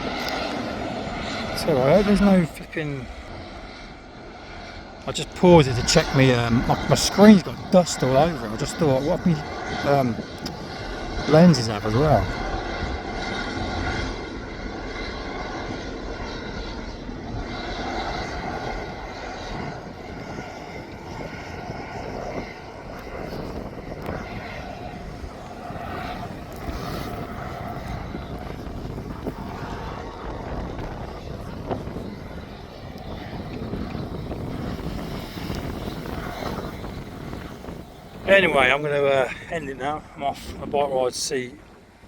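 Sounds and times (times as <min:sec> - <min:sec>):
low rumble: 0:00.0 - 0:40.2
engine drone: 0:00.0 - 0:42.0
steady tones: 0:00.5 - 0:20.1.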